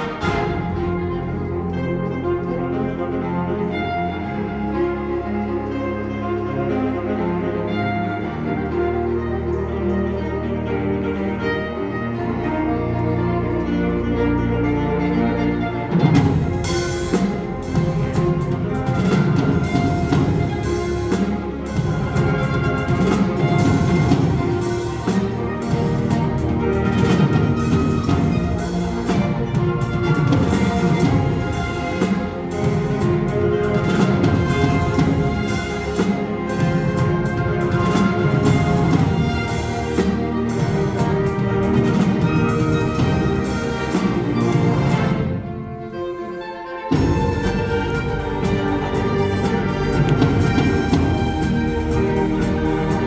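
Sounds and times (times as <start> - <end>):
timpani strikes: 0.0 - 2.7, 15.0 - 46.2, 46.8 - 53.0
wind ensemble playing: 0.0 - 53.0.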